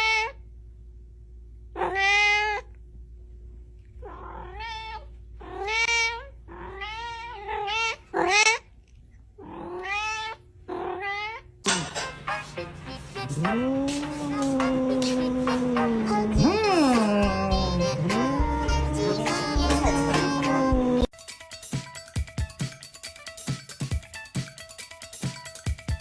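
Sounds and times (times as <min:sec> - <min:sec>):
cat meowing: 0:01.8 - 0:02.6, 0:04.0 - 0:08.6, 0:09.4 - 0:11.5
noisy sound: 0:11.7 - 0:21.1.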